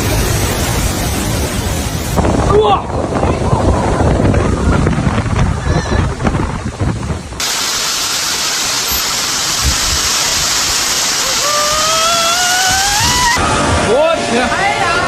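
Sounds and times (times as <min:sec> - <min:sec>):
rushing water: 0:00.0 - 0:15.0
rising pitched tone: 0:11.2 - 0:15.0.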